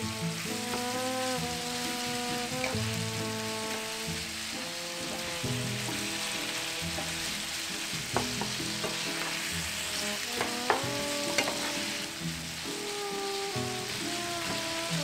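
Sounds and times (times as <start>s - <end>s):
food sizzling in a frying pan: 0.0s - 15.0s
spatula clacking against a pan: 6.9s - 9.6s, 10.3s - 11.8s.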